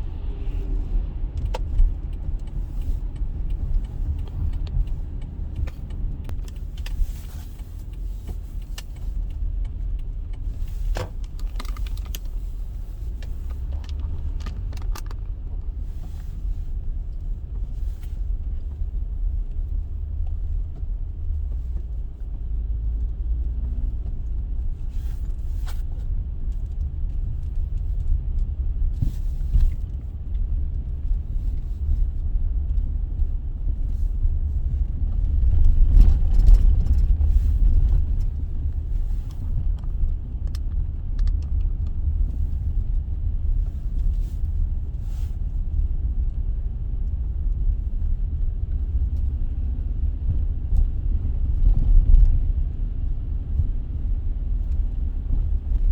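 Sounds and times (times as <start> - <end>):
car road rumble inside cabin: 0.0 - 55.9
small clicks and rattles: 1.4 - 18.9, 34.7 - 44.4.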